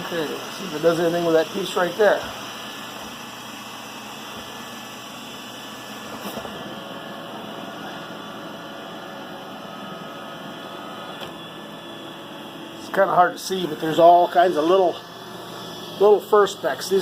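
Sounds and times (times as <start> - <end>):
robot vacuum running on carpet: 0.0 - 11.8.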